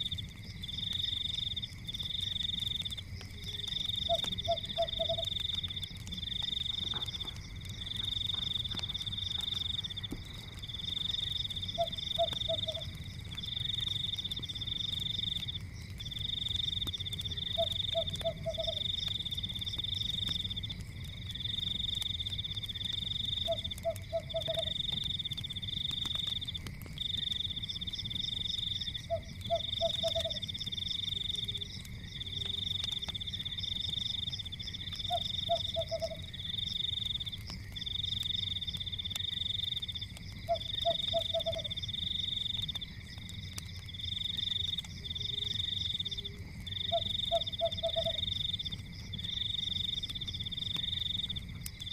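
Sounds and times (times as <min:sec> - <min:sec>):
high trilling insect chorus: 0:00.0 - 0:20.6, 0:21.2 - 0:25.8, 0:27.0 - 0:51.9
wood fire crackling: 0:00.0 - 0:51.9
frog croaking: 0:03.7 - 0:05.4, 0:06.5 - 0:13.0, 0:17.3 - 0:18.9, 0:23.4 - 0:24.8, 0:29.0 - 0:30.4, 0:35.0 - 0:36.5, 0:40.4 - 0:41.9, 0:45.0 - 0:48.6.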